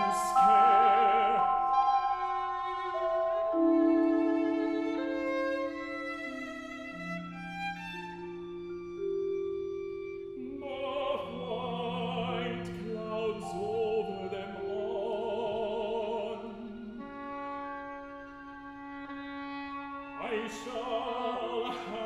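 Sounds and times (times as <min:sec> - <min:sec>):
vibrato melody line: 0:00.0 - 0:07.7
held bowed string notes: 0:00.0 - 0:22.0.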